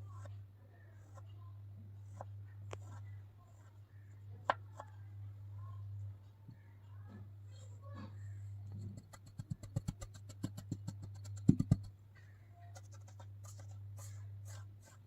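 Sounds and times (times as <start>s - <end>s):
sand clicking and tapping: 8.7s - 12.0s, 12.7s - 15.0s.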